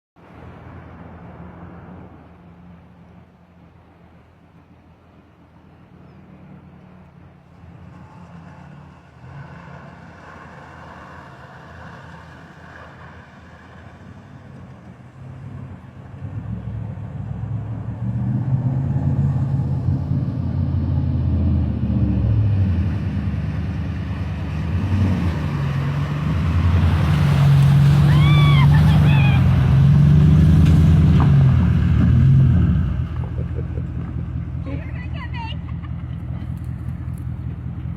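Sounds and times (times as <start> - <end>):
truck engine running: 15.3 - 37.9.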